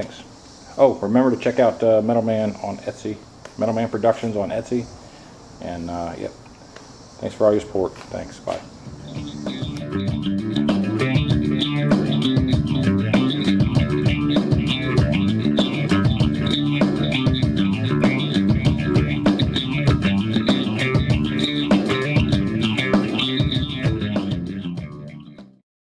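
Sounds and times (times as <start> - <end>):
rock music: 9.1 - 25.6.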